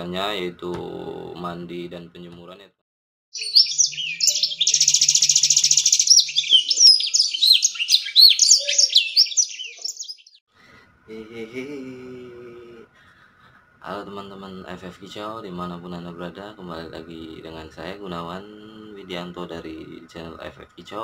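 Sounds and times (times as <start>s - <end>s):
songbird singing: 3.4s - 10.4s.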